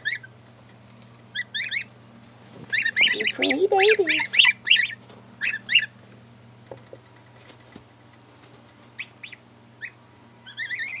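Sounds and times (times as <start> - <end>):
goslings peeping: 0.0 - 0.4, 1.3 - 6.0, 8.8 - 11.0
steady low hum: 0.0 - 11.0.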